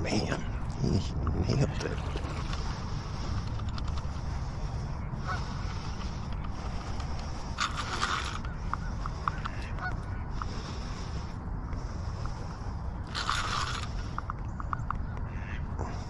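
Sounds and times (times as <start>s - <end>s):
fishing reel winding: 5.8s - 9.5s, 13.1s - 14.3s.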